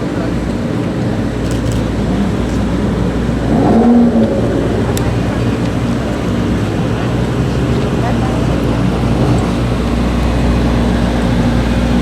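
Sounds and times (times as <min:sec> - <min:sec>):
car engine idling: 0:00.0 - 0:12.0
engine rev blip: 0:03.3 - 0:06.5.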